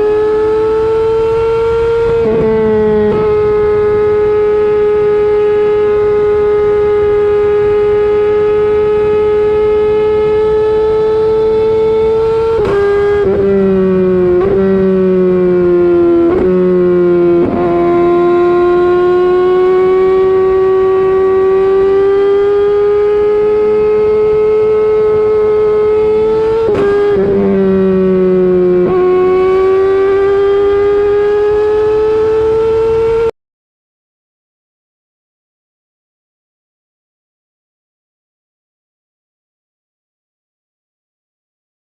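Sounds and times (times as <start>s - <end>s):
motorcycle engine at high revs: 0.0s - 33.3s.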